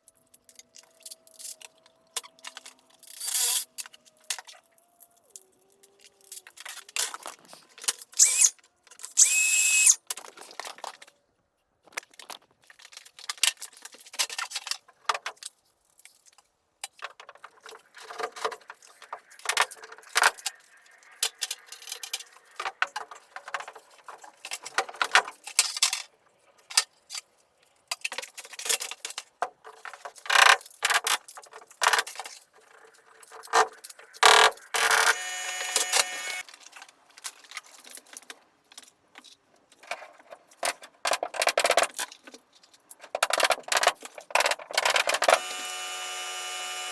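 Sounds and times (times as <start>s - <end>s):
power tool running: 8.2s - 8.5s, 9.2s - 10.0s, 34.8s - 36.4s, 45.3s - 46.9s.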